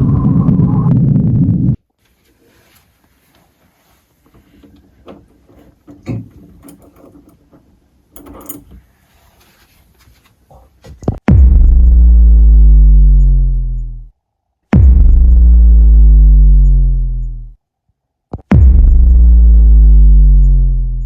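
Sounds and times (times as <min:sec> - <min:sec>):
deep electronic bass tone: 0:11.3 - 0:17.6, 0:18.4 - 0:21.0.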